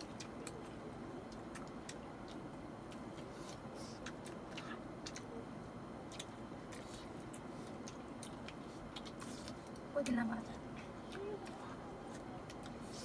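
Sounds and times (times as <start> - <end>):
low background hum: 0.0 - 13.0
mouth clicks and smacks eating: 0.0 - 13.0.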